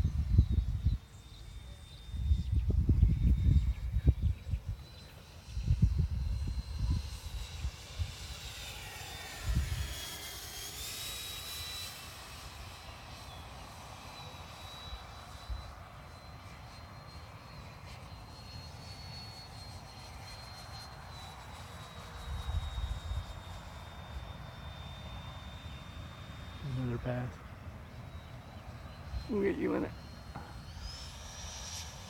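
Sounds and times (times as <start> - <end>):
electric ducted fan whine: 0.0 - 32.0
wind buffeting microphone: 2.1 - 4.8, 5.5 - 8.3.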